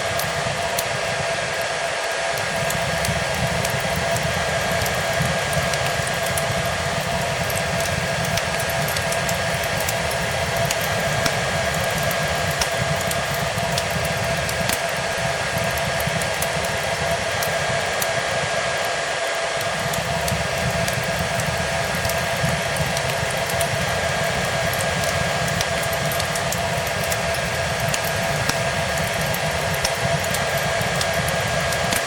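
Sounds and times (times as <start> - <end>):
hair dryer running: 0.0 - 32.0
wood fire crackling: 0.0 - 32.0.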